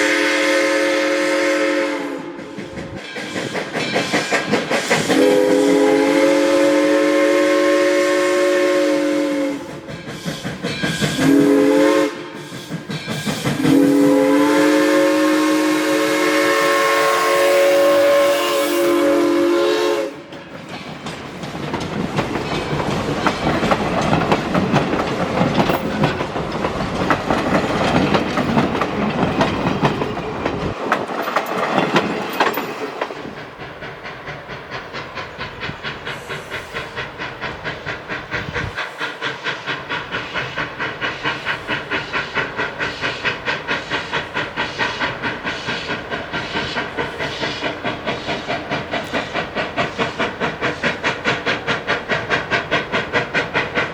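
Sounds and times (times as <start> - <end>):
steam whistle blast: 0.0 - 2.6, 5.0 - 12.8, 13.6 - 20.3
steam train chugging by: 0.0 - 53.9.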